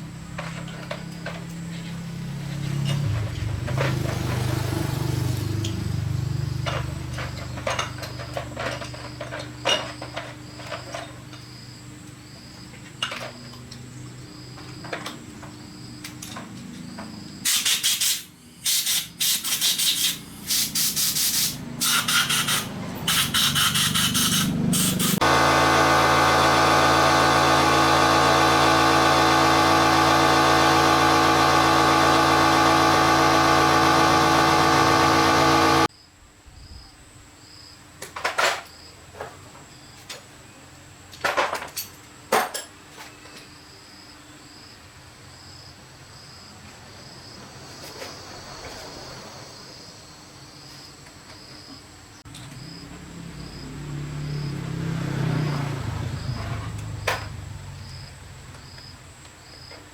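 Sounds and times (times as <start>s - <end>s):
loud short noisy bursts: 17.4s - 35.9s.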